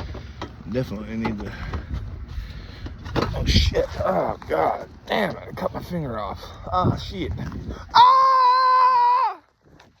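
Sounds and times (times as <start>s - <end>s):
man screaming in pain: 7.9s - 9.5s.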